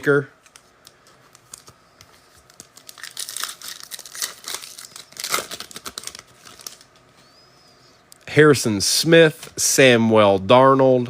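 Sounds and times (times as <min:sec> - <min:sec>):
wrapper crinkling and tearing: 0:02.4 - 0:07.0.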